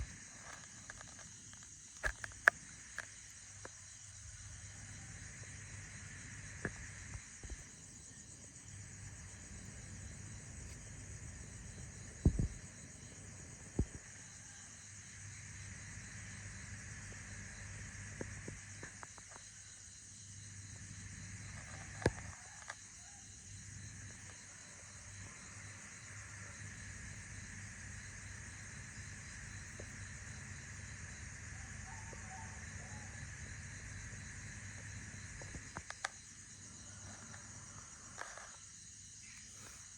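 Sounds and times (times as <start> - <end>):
insect chorus chirring: 0.0 - 39.9.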